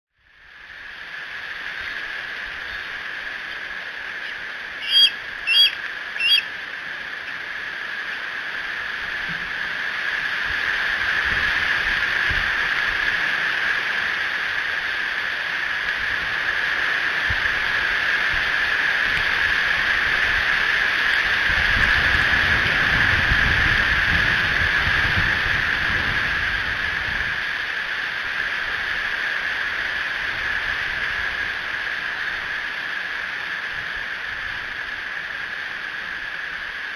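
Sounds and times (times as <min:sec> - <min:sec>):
strong wind through trees: 0:00.1 - 0:36.9
high-pitched bird calls: 0:04.2 - 0:06.6
wind buffeting microphone: 0:15.9 - 0:27.9.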